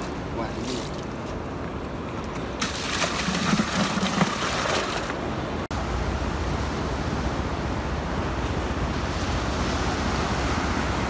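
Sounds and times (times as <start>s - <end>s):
wind: 0.0s - 11.0s
water splashing into a tub: 2.6s - 5.1s.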